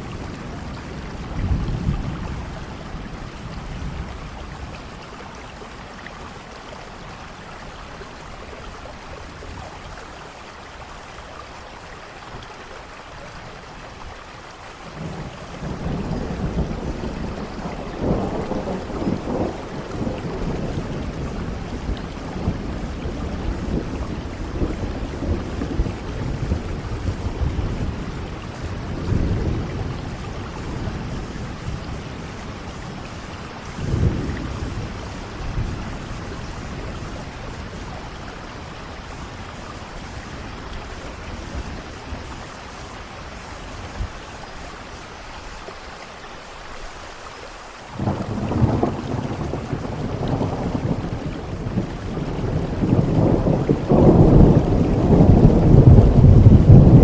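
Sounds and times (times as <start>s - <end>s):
thunder rumbling: 0.0s - 5.8s, 14.8s - 45.1s, 47.9s - 57.0s
steady rain: 0.0s - 57.0s
loud crack of thunder: 48.0s - 57.0s.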